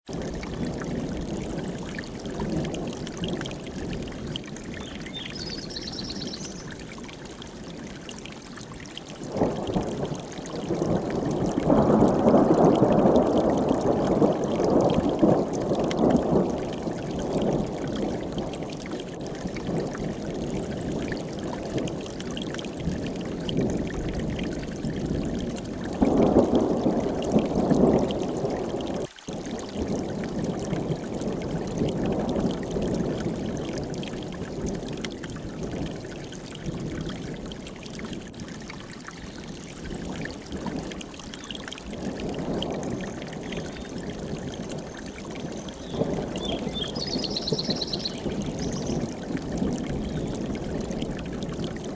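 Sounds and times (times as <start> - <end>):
stream rushing over rocks: 0.1 - 51.9
high bird chirp: 4.8 - 6.7, 45.8 - 49.0.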